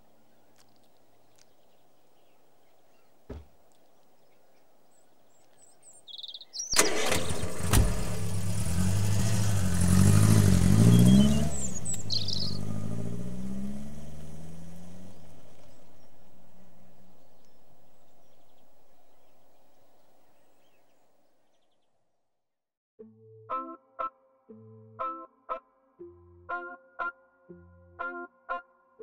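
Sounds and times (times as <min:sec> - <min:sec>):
car engine starting and revving: 0:06.8 - 0:17.1.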